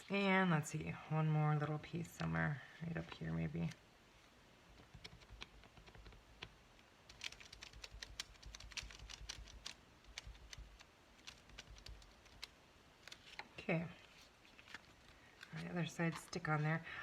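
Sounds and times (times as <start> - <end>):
fingers tapping on paper: 4.8 - 6.5, 7.1 - 12.5.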